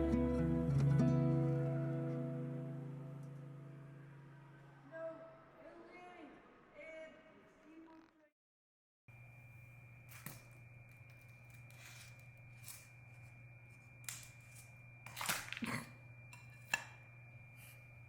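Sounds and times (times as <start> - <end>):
low electrical hum: 0.0 - 7.9, 9.1 - 18.0
high-pitched whine: 0.1 - 7.8.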